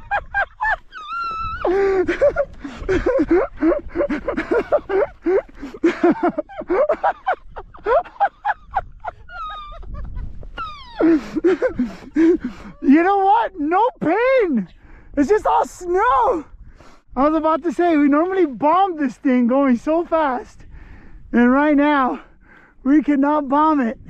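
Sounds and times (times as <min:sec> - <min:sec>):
people exclaiming and crying: 0:00.0 - 0:16.5.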